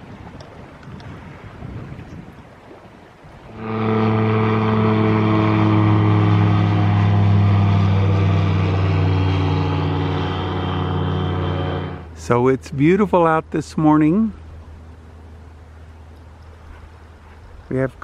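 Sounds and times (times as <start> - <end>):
faint wind: 0.0 - 18.0
engine running steadily: 3.6 - 12.2.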